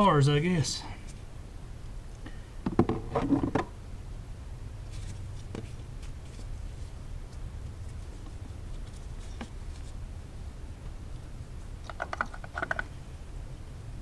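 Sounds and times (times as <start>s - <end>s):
steady low hum: 0.0s - 2.7s.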